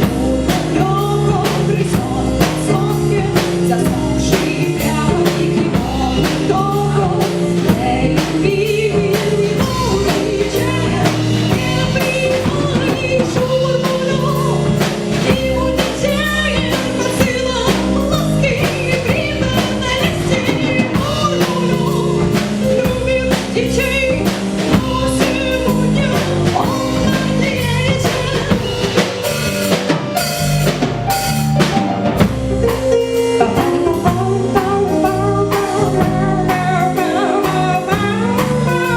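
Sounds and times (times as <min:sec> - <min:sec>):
live band music: 0:00.0 - 0:38.9.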